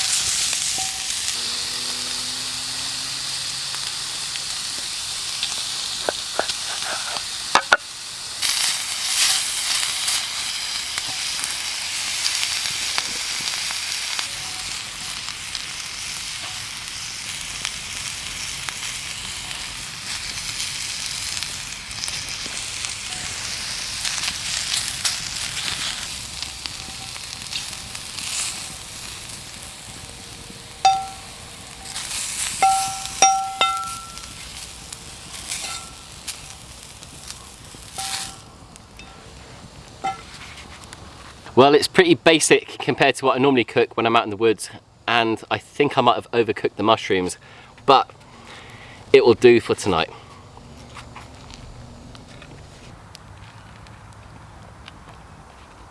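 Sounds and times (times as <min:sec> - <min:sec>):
food sizzling in a pan: 0:00.0 - 0:40.8
short ringing clinks: 0:30.8 - 0:34.4, 0:38.0 - 0:38.4.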